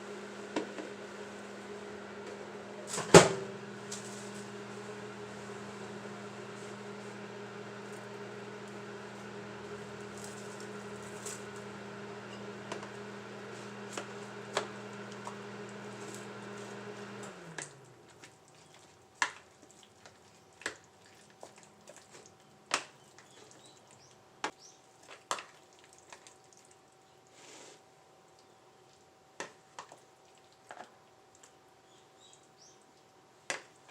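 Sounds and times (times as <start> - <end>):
microwave oven humming: 0.0 - 18.1.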